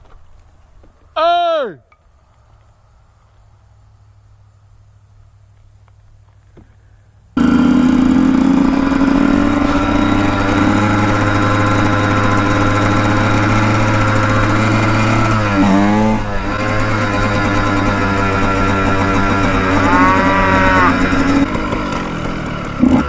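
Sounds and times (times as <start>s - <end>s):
dirt bike engine running: 6.2s - 23.0s.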